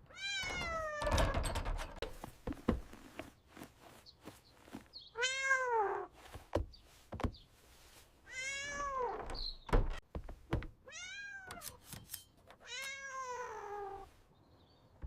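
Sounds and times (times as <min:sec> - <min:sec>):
cat meowing: 0:05.2 - 0:06.1, 0:08.3 - 0:09.2, 0:10.9 - 0:11.7, 0:12.6 - 0:14.1.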